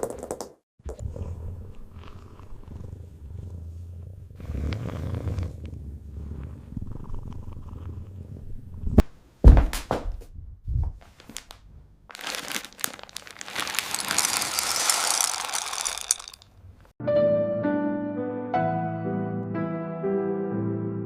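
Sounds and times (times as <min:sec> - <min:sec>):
cat purring: 0:00.9 - 0:09.0.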